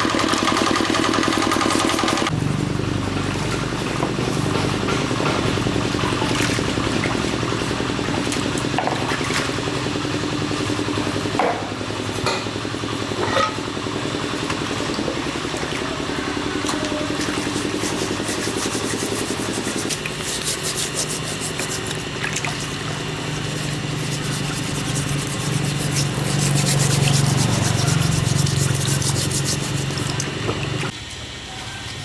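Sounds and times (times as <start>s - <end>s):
motor humming: 0.0s - 32.0s
rapid rasping scrape: 17.3s - 30.2s.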